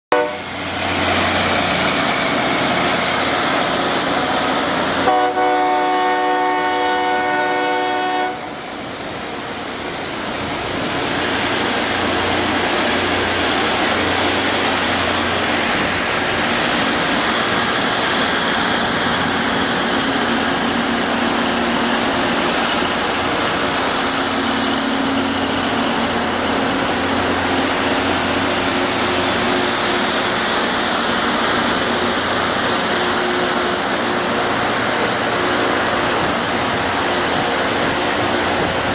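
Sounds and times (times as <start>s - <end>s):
train horn: 0.1s - 0.5s, 5.0s - 8.6s
rail grinding noise: 0.1s - 38.9s.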